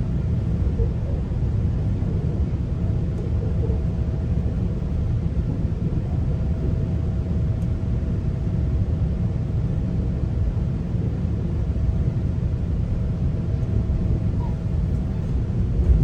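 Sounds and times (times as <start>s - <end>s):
faint steady hum: 0.0s - 16.0s
train coach rumbling: 12.8s - 16.0s.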